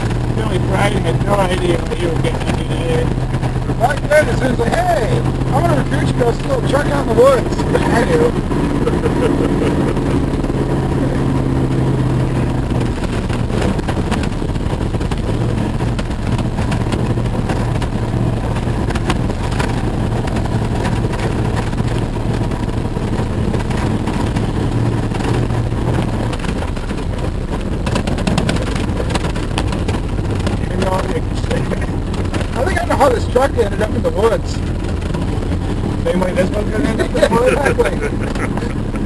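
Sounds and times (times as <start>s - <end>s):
car engine running: 0.0s - 39.0s
tyre and road noise: 0.0s - 39.0s
rattles and knocks: 11.4s - 37.2s.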